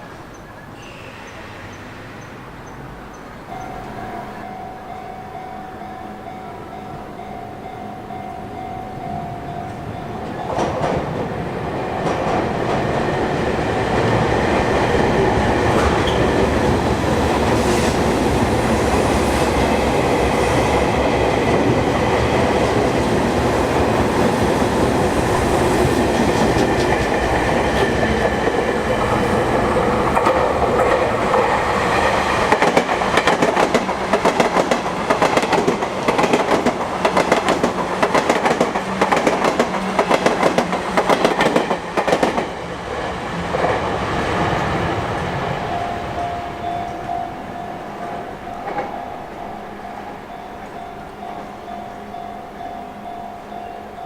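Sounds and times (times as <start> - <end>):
electric train passing: 0.0 - 54.0
wheels clacking over rail joints: 8.5 - 51.3.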